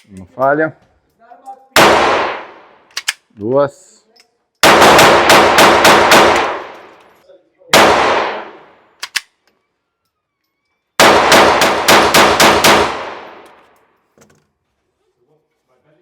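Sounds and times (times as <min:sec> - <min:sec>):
pistol shots with echo: 0:01.8 - 0:02.9, 0:04.6 - 0:07.0, 0:07.7 - 0:08.9, 0:11.0 - 0:13.5
faint gun clicks: 0:02.8 - 0:03.3, 0:09.0 - 0:09.6.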